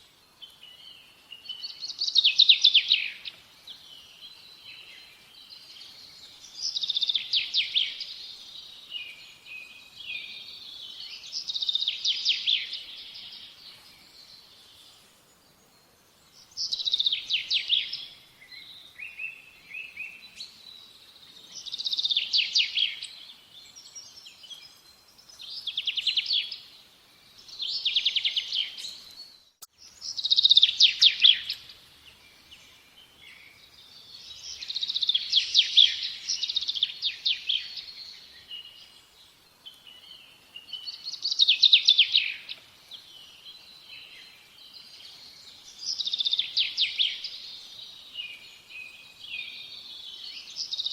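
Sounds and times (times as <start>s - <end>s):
songbird singing trilled notes: 0.4s - 50.9s.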